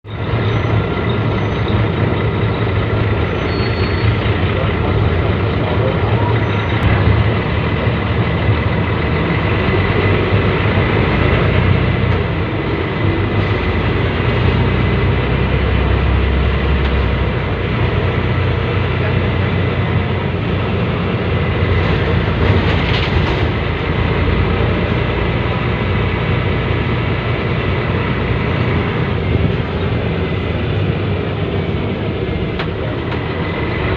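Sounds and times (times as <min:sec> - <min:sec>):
bus diesel engine running: 0:00.0 - 0:33.9.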